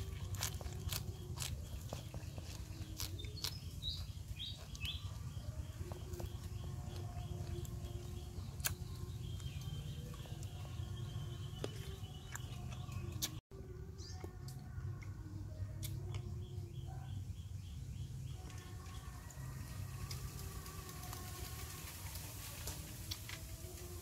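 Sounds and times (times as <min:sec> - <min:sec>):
birds chirping: 0:00.0 - 0:13.4
crunchy chewing: 0:00.0 - 0:13.4, 0:18.3 - 0:24.0.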